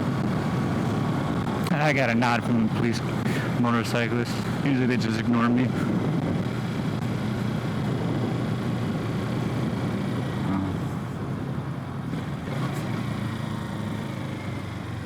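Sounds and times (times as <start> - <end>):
wind rumble on microphone: 0.0 - 15.0
motorcycle engine running: 5.4 - 15.0.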